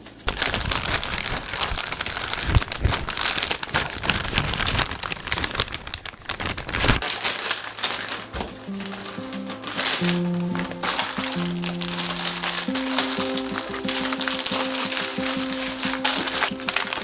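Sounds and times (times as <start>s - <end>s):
packaging crinkling and rustling: 0.0s - 17.0s
soft background music: 7.1s - 17.0s.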